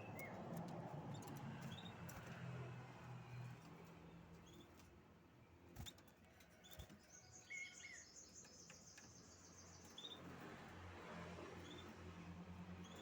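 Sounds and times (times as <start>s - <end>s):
canary chirping and trilling: 1.1s - 2.3s, 11.6s - 12.1s, 12.8s - 13.0s.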